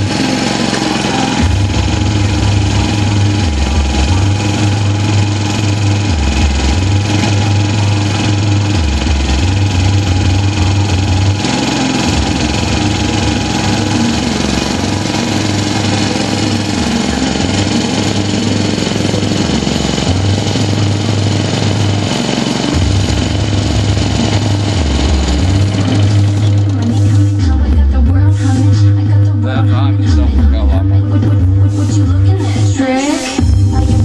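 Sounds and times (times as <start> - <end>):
lawn mower engine running: 0.0 - 34.0.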